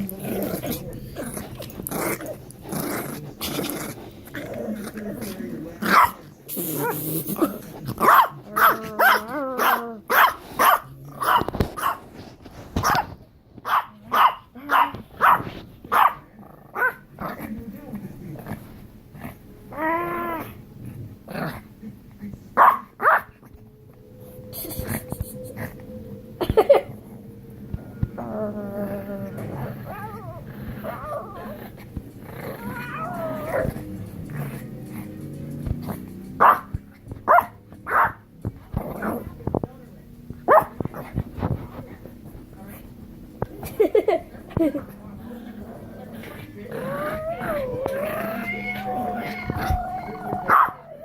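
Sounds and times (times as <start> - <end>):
dog barking: 8.0 - 12.0, 13.6 - 16.2, 22.6 - 23.3, 36.4 - 36.7, 37.3 - 38.2, 40.5 - 40.7, 50.5 - 50.8
music playing: 32.1 - 38.4.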